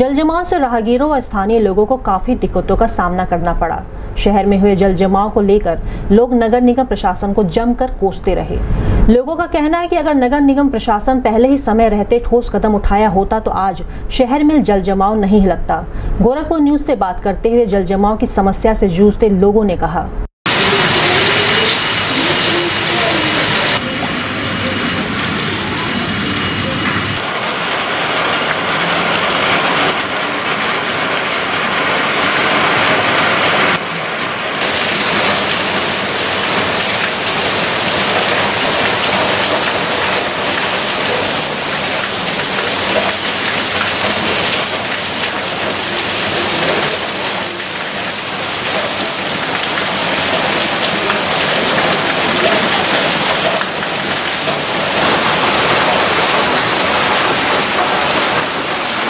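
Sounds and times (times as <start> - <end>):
heavy rain falling: 20.5 - 59.0.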